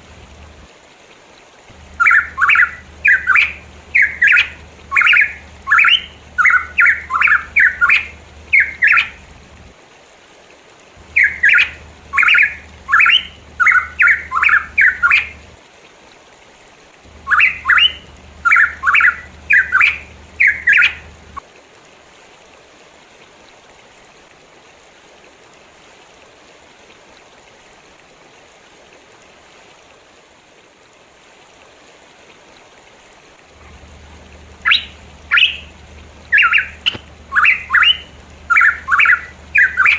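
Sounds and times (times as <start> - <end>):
steady background hiss: 0.0 - 39.9
bird rapid repeated calls: 1.7 - 9.4, 11.0 - 15.5, 17.1 - 21.4, 33.6 - 39.9.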